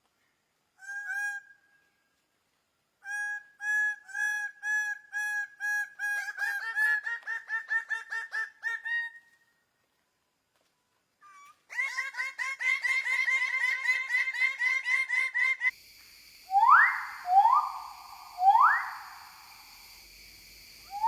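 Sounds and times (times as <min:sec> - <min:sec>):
bird calling repeated notes: 0:16.5 - 0:19.9.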